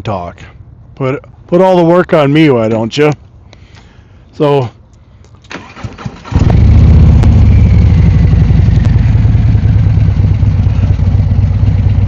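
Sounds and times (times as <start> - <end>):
motorcycle engine starting and running: 5.5 - 12.0.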